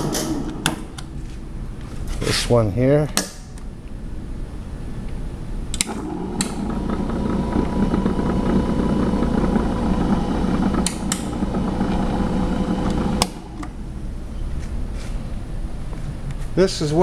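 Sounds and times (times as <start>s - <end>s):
switch clicks: 3.1s - 3.7s, 10.8s - 12.0s
grinder motor hum and whine: 5.8s - 14.2s.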